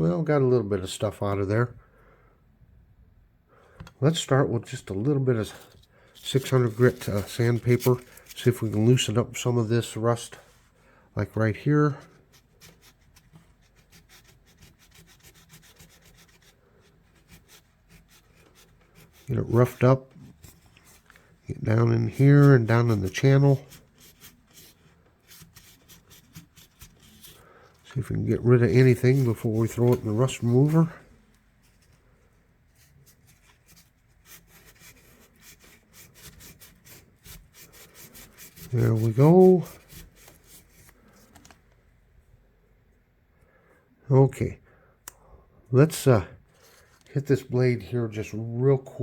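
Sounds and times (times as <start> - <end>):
sandpaper rubbing on metal: 6.2 - 9.2, 12.0 - 20.0, 21.7 - 27.4, 28.2 - 31.1, 32.9 - 40.9.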